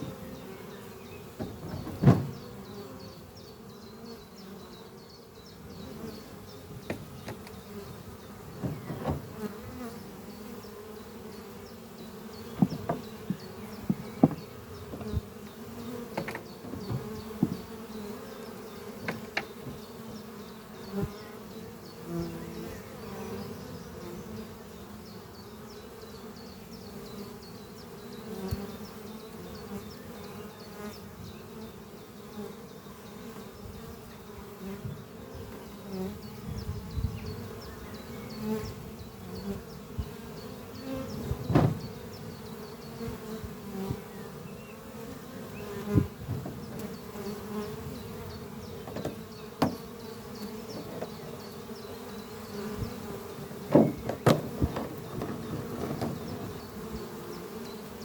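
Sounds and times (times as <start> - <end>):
bees buzzing past close by: 0.0 - 58.0
drone of bee wingbeats: 34.2 - 58.0.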